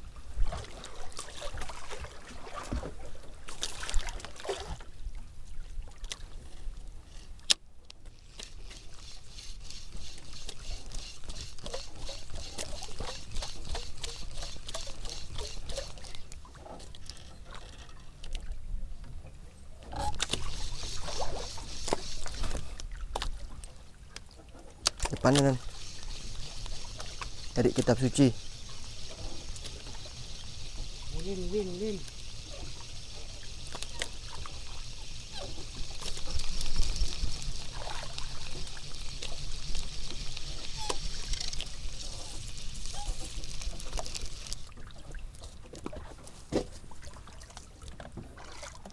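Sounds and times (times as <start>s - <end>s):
sea water lapping around boat: 0.0s - 48.9s
small clicks: 38.5s - 44.7s.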